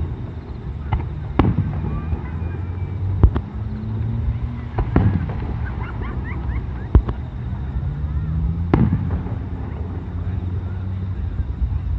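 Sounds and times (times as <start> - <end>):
firework shells bursting: 4.8 - 7.4.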